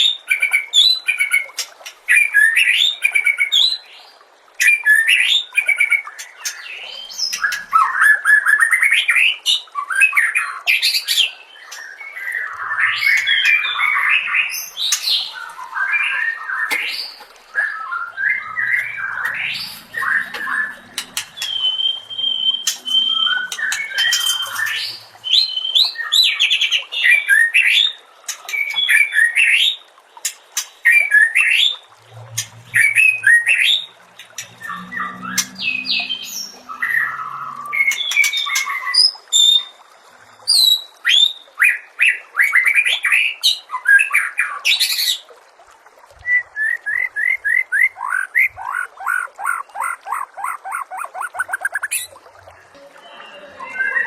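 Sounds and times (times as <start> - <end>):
bird singing whistled song: 21.4 - 26.4, 46.2 - 48.3.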